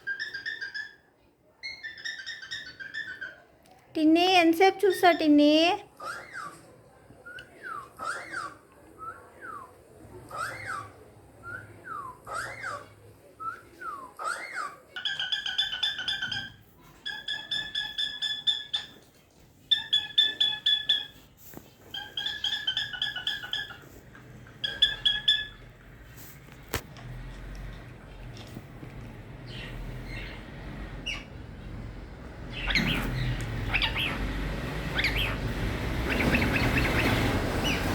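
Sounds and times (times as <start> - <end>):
cockatiel whistling: 13.4 - 19.0, 19.7 - 21.2, 21.9 - 23.8, 24.6 - 25.6, 34.9 - 35.4, 36.0 - 37.9.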